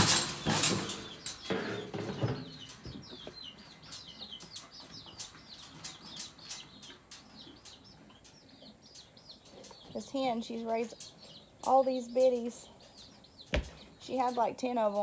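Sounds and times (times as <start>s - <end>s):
chicks peeping: 0.0s - 15.0s
knocks or rustling: 13.5s - 13.9s.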